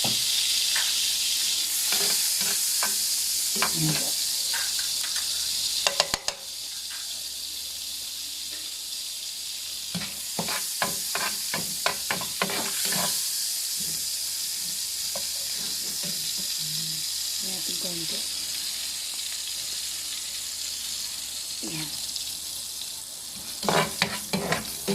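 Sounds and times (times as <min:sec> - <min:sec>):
garlic sizzling in a pan: 0:00.0 - 0:24.9
stirring strokes against pan: 0:01.7 - 0:05.6, 0:09.9 - 0:16.6, 0:23.2 - 0:24.9.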